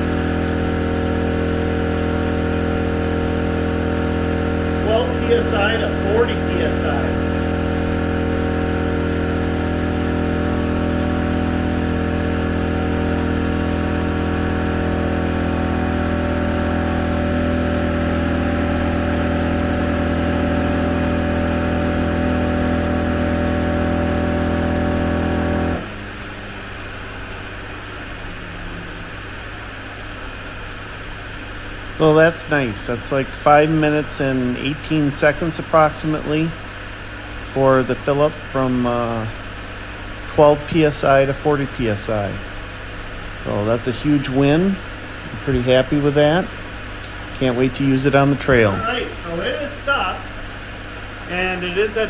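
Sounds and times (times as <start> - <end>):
air compressor running: 0.0 - 52.0
low steady hum: 0.0 - 52.0.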